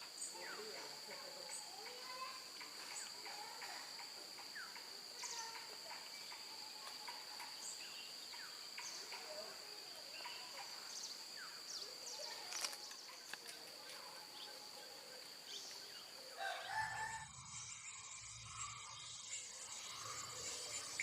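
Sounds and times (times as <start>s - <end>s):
high-pitched insect drone: 0.0s - 21.0s
bird chirps: 14.0s - 21.0s.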